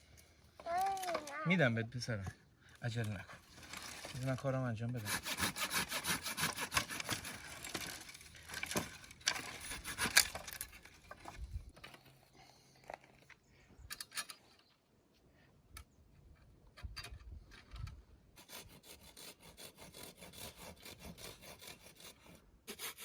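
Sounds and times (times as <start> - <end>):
wood being sawn: 4.9 - 10.6, 18.4 - 23.0.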